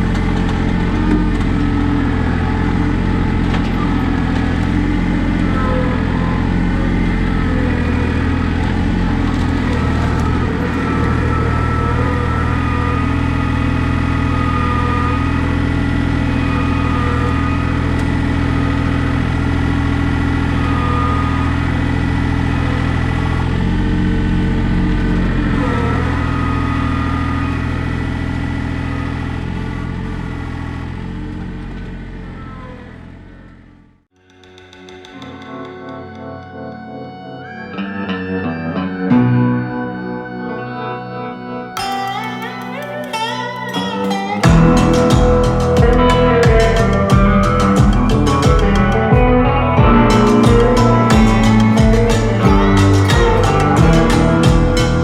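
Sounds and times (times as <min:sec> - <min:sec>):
faint wavering whine: 0:00.0 - 0:33.8
tractor diesel engine running: 0:00.0 - 0:34.1, 0:37.2 - 0:55.0.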